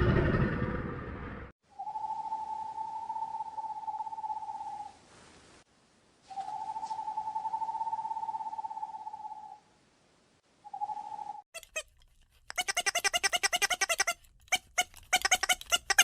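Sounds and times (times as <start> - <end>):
animal trilling call: 11.6 - 16.0.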